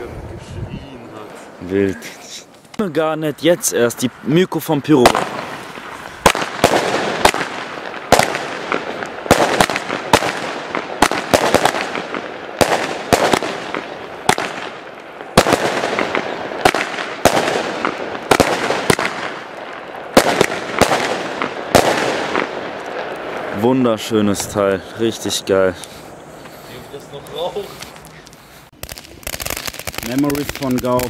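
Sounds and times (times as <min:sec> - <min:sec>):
firework bangs: 0:04.9 - 0:31.0
firework hiss: 0:25.7 - 0:31.0.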